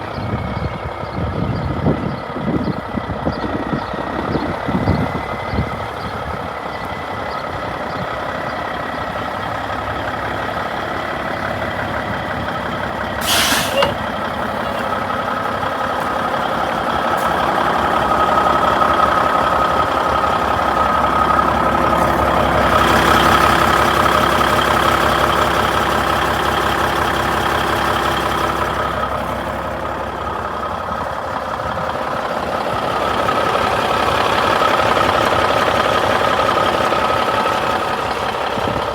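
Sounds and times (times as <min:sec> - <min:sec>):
diesel truck engine running: 0:00.0 - 0:38.9
air hiss: 0:13.2 - 0:14.0.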